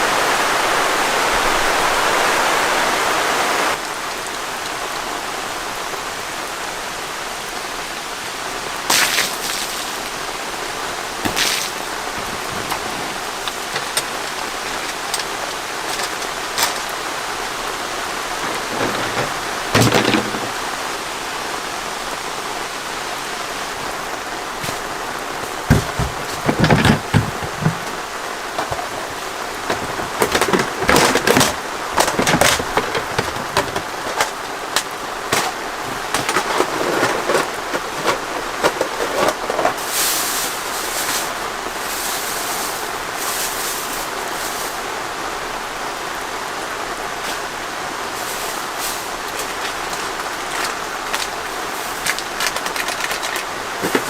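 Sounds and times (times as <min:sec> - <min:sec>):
steady rain falling: 0:00.0 - 0:54.0
water splashing: 0:08.6 - 0:20.7, 0:22.8 - 0:45.1, 0:47.2 - 0:54.0.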